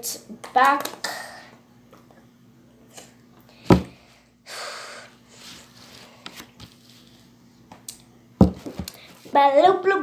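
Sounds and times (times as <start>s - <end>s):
plastic lid knocking onto container: 8.4s - 8.8s.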